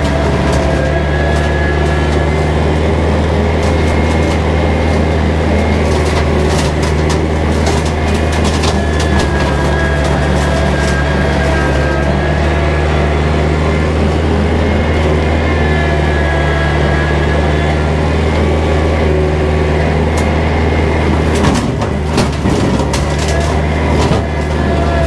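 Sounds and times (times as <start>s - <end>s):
sharp cracks and knocks: 0.0s - 13.3s, 20.1s - 25.0s
tractor diesel engine running: 0.0s - 25.0s.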